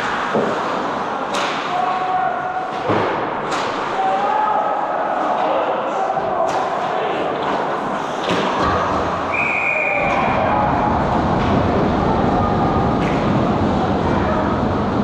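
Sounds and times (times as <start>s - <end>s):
voices echoing in arena: 0.0s - 15.0s
referee's whistle blast: 9.3s - 10.2s.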